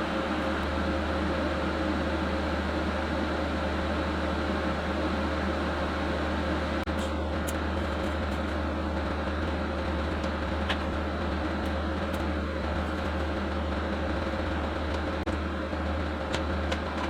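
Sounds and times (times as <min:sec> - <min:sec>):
motor machine humming: 0:00.0 - 0:17.0.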